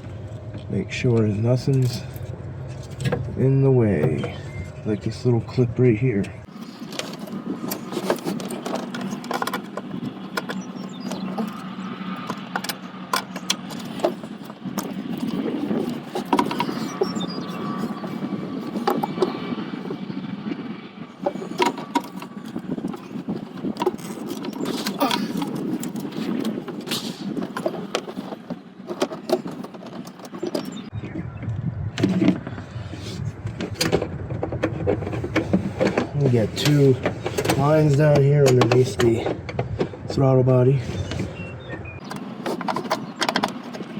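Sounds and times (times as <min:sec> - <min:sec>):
steady background hum: 0:00.0 - 0:43.9
parts clicking and clattering: 0:06.2 - 0:20.0, 0:21.2 - 0:30.9, 0:33.4 - 0:40.3, 0:41.0 - 0:43.9
tools clicking and knocking: 0:06.9 - 0:11.6, 0:12.2 - 0:17.0, 0:27.4 - 0:30.8, 0:42.0 - 0:43.9.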